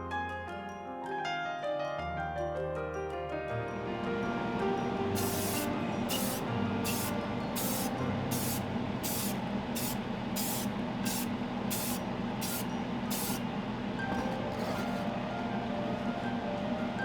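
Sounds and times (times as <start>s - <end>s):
paint spraying hissing bursts: 5.2s - 13.4s.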